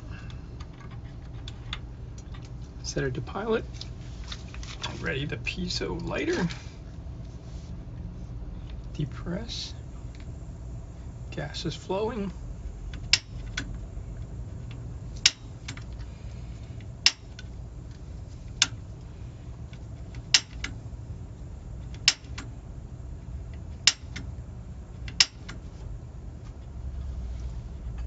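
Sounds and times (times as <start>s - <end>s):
piezo igniter clicking: 12.8s - 24.4s, 25.0s - 25.7s.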